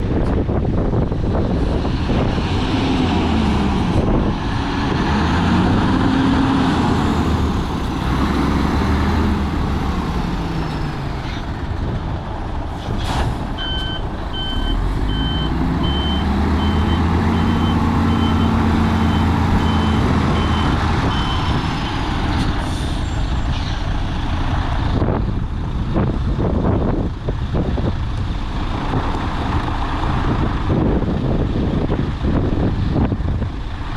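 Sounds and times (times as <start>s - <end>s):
diesel truck engine running: 0.0s - 33.9s
reversing alarm beeps: 13.6s - 22.1s.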